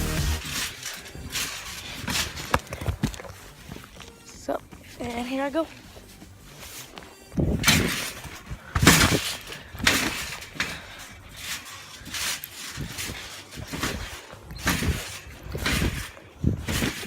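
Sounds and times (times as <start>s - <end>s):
landings on trampoline mat: 0.3s - 3.2s, 6.6s - 17.0s.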